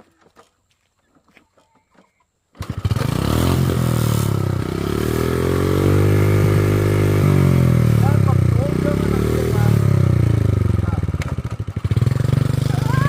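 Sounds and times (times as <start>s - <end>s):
motorbike engine revving: 2.6s - 13.0s.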